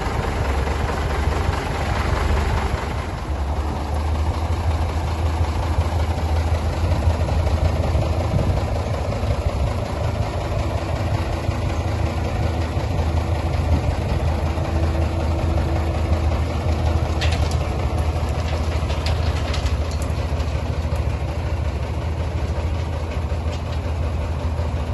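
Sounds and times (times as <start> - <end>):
truck diesel engine idling: 0.0 - 24.9.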